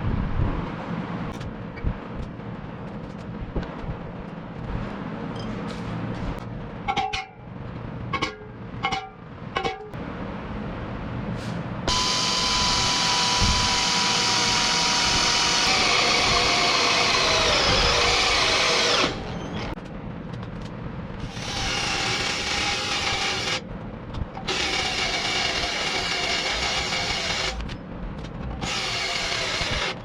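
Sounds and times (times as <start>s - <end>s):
electric drill running: 11.9s - 19.7s, 21.3s - 23.6s, 24.5s - 27.6s, 28.6s - 30.0s.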